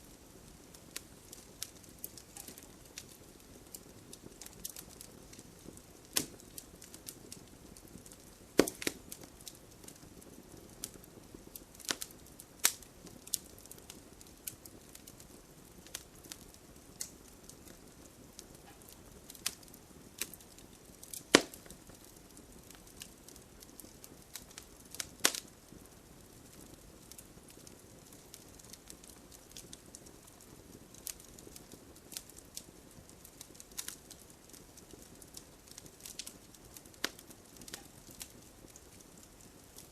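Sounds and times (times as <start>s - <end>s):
campfire crackling and popping: 0.0s - 39.9s
faint steady hiss: 0.0s - 39.9s.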